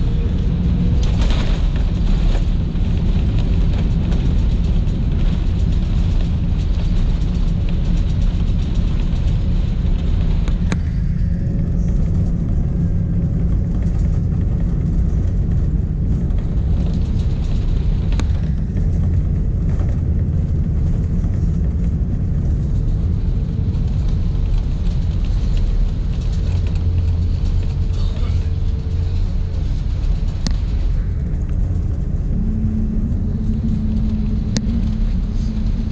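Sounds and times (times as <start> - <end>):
airliner cabin rumble: 0.0 - 35.9
faint steady hum: 0.0 - 35.9.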